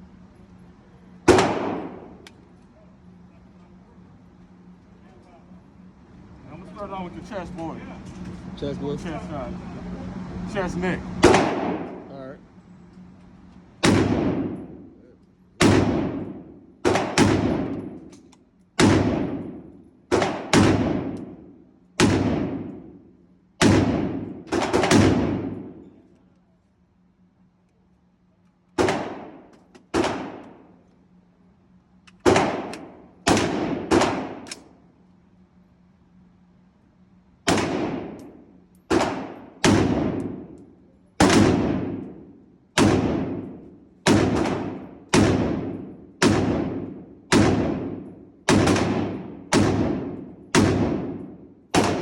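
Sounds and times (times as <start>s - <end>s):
pistol shots echoing: 1.3s - 2.2s, 11.2s - 12.0s, 13.8s - 14.8s, 15.6s - 18.0s, 18.8s - 21.4s, 22.0s - 22.9s, 23.6s - 25.8s, 28.8s - 30.6s, 32.2s - 34.6s, 37.5s - 40.6s, 41.2s - 52.0s.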